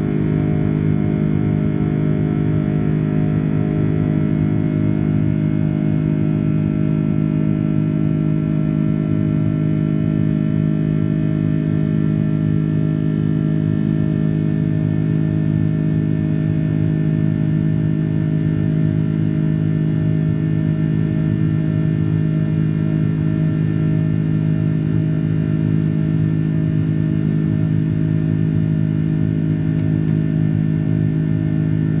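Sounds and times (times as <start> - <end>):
jet engine cabin drone: 0.0 - 32.0.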